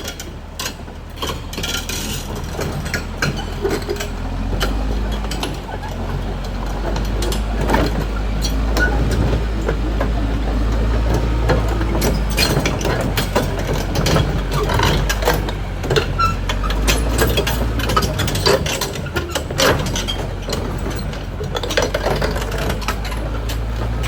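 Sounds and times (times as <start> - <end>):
bulldozer diesel engine running: 0.0 - 24.0
machine clanking and knocking: 0.0 - 24.0.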